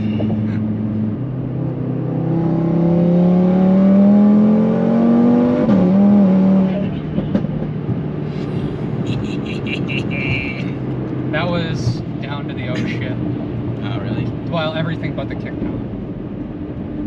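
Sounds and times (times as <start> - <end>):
car engine accelerating: 0.0 - 16.9.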